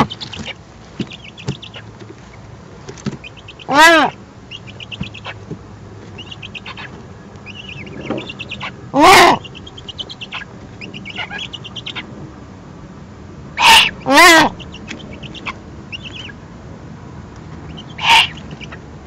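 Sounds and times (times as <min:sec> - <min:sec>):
loud harsh bird call: 0:03.2 - 0:05.4, 0:06.2 - 0:12.0, 0:13.6 - 0:16.4, 0:17.7 - 0:18.8
short high bird chirps: 0:06.2 - 0:08.7.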